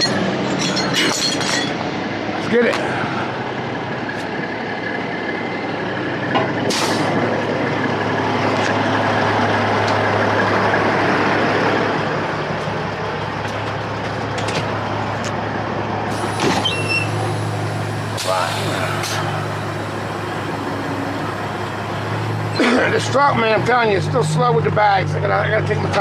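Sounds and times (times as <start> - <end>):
diesel engine idling: 1.8 - 26.0
compressed air hissing: 16.1 - 23.0.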